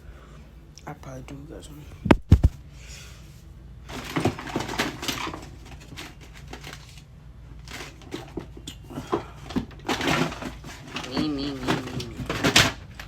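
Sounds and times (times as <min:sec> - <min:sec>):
rummaging clicks and rustles: 0:03.9 - 0:13.0.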